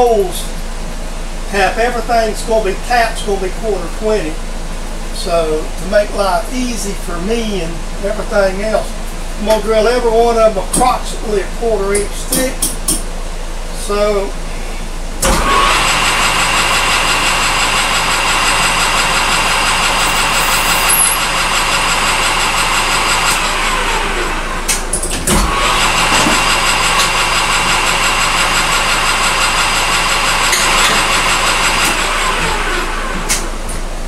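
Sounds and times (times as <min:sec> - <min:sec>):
low shop hum: 0:00.0 - 0:34.0
spindle motor drilling plastic: 0:15.2 - 0:24.4, 0:25.2 - 0:33.4.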